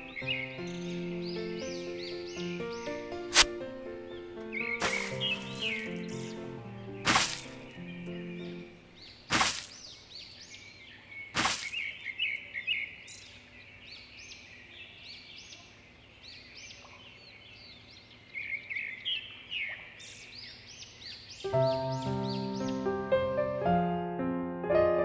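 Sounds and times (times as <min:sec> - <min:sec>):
small birds chirping: 0:00.0 - 0:23.6
sharp knocks: 0:07.1 - 0:07.6.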